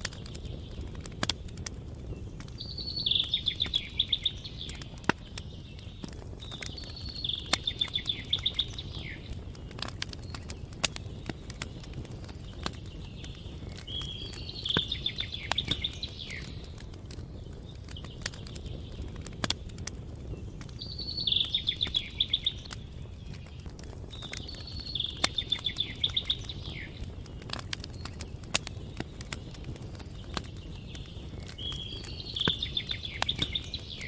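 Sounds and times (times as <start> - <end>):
campfire crackling: 0.0 - 34.0
songbird trilling: 2.6 - 5.0, 6.6 - 9.3, 13.8 - 16.6, 20.8 - 22.7, 24.4 - 27.0, 31.6 - 34.0.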